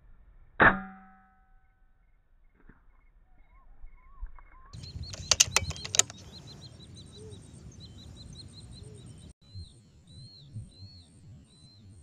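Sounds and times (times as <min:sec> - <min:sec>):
small birds chirping: 0:04.7 - 0:12.0
sharp clicks: 0:04.8 - 0:06.3.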